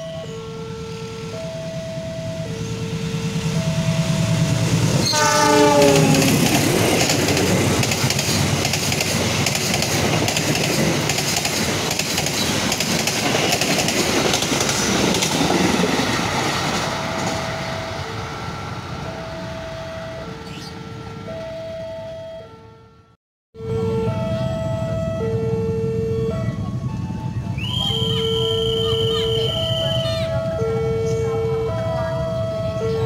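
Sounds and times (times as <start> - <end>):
two-tone electronic warning chime: 0.0 - 6.2, 16.9 - 22.7, 23.6 - 33.0
train horn blast: 5.0 - 7.2
train wheel clatter: 6.0 - 17.5.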